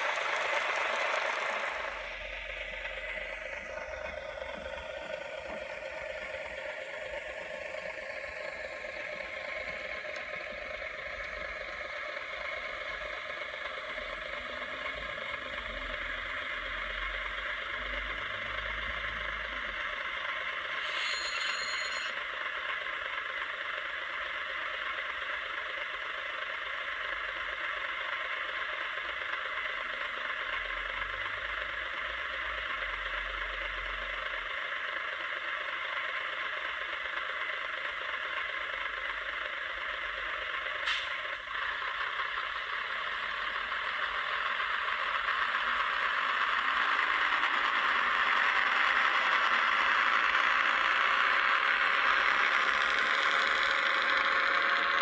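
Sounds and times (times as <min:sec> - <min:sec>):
model train running on rails: 0:00.0 - 0:55.0.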